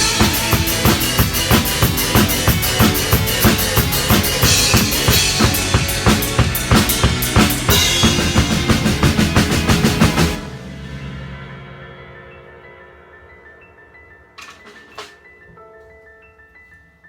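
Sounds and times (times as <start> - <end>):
drum kit bass drum and snare: 0.0 - 12.0
song playing: 0.0 - 12.6
cymbal crashes: 0.0 - 13.4.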